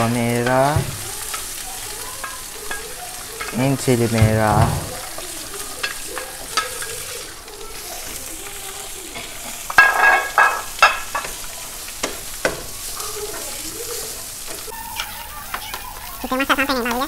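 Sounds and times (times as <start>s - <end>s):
spatula scraping a pan: 0.0s - 16.2s
food sizzling in oil: 0.0s - 17.0s.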